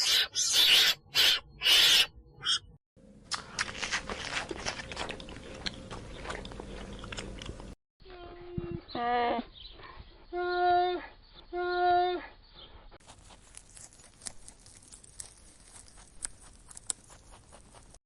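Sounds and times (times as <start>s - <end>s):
animal calling: 0.0s - 2.7s.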